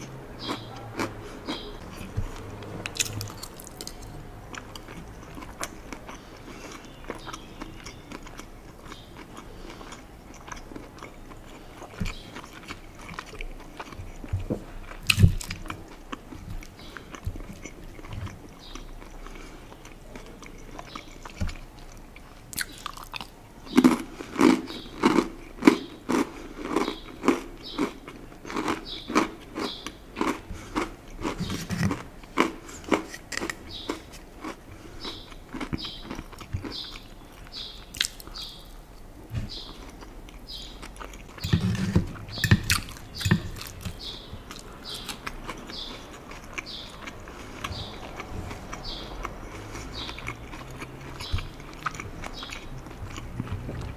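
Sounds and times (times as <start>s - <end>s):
loud crunchy chewing: 0.0s - 53.9s
soft chewing: 0.0s - 53.9s.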